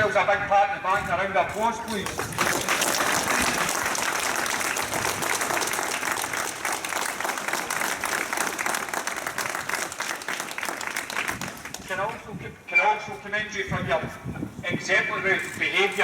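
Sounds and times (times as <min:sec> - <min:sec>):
crowd applauding: 0:02.0 - 0:11.9.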